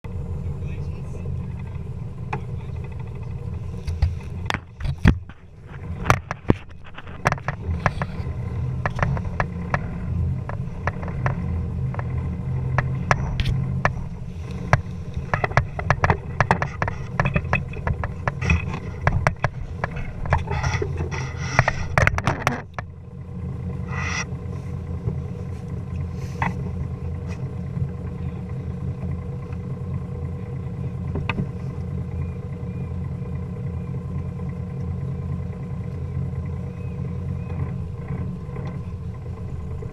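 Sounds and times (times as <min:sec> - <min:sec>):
engine droning: 0:00.0 - 0:39.9
sharp clicks and knocks: 0:01.6 - 0:23.0, 0:31.1 - 0:31.6.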